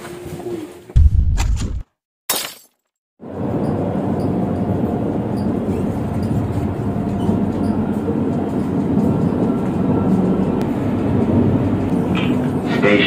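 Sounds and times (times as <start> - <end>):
electric train rumble from inside: 3.2 - 13.0.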